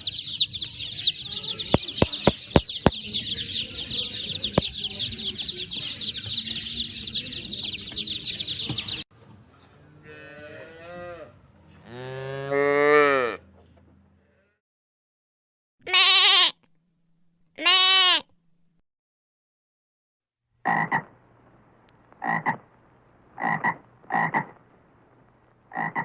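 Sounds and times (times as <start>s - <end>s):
small birds chirping: 0.0s - 9.0s
cow mooing: 10.0s - 13.5s.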